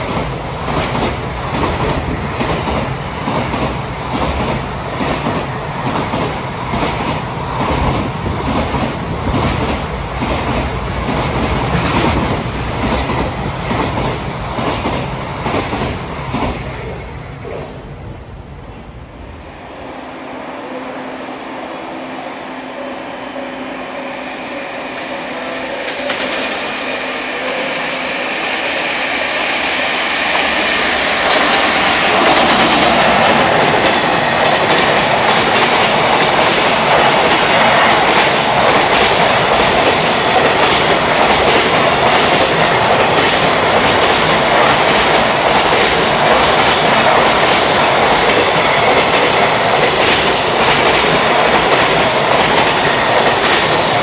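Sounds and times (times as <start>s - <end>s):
electric locomotive humming: 0.0s - 54.0s
freight train wagons rumbling: 24.9s - 54.0s
wheels clacking over rail joints: 30.4s - 54.0s.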